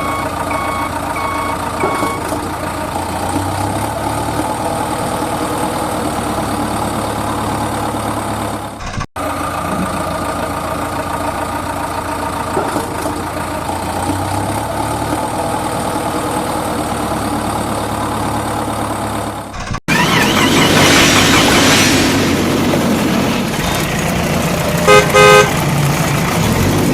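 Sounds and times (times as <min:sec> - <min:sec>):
heavy vehicle engine idling: 0:00.0 - 0:26.9.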